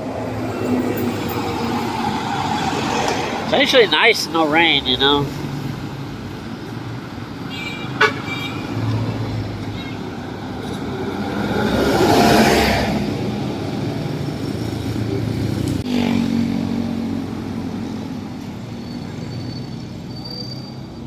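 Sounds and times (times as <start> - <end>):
background traffic: 0.0 - 21.0
vehicle passing close by: 8.6 - 18.3
vehicle engine passing: 10.2 - 18.0.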